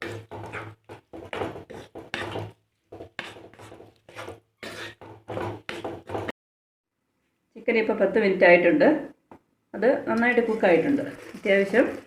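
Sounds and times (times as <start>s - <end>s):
wooden spatula scraping pan: 0.0s - 6.3s.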